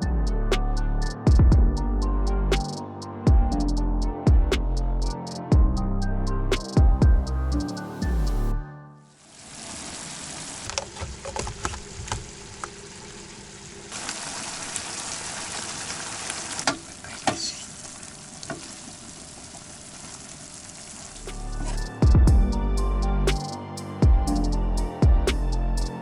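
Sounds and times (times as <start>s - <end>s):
food frying with crackles and pops: 9.3s - 21.3s.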